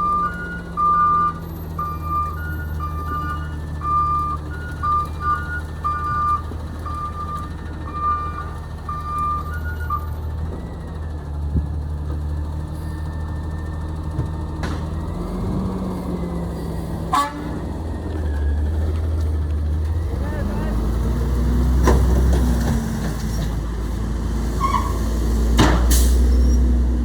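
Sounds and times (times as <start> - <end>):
reversing alarm beeping: 0.0 - 11.8
truck diesel engine running: 0.0 - 27.0.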